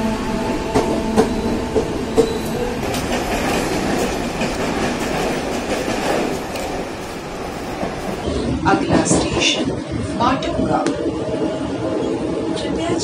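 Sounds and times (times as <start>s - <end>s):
train wheels rumbling on rail: 0.0s - 13.0s
clacks over rail joints: 0.7s - 9.6s.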